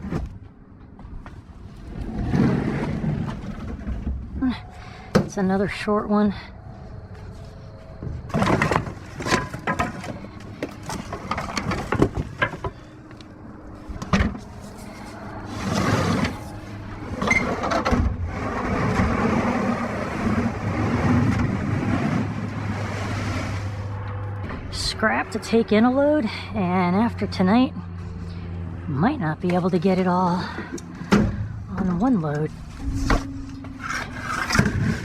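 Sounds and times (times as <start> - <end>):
junk clattering in metal dumpster: 8.2 - 12.8, 32.7 - 35.0.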